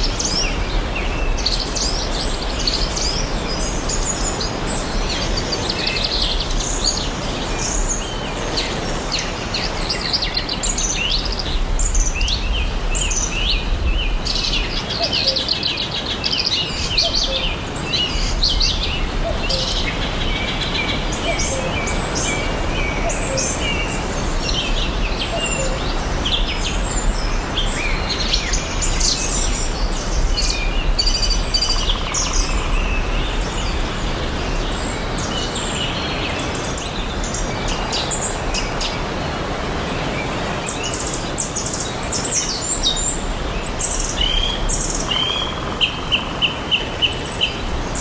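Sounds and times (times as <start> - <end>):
rushing forest ambience: 0.0 - 48.0
songbirds singing and trilling: 0.0 - 48.0.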